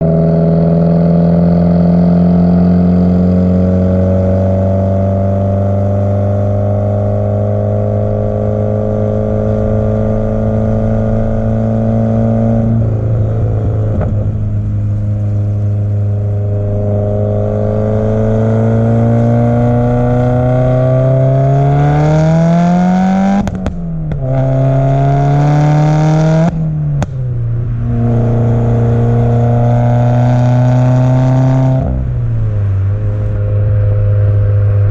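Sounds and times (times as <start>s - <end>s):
car engine revving and accelerating: 0.0s - 34.9s.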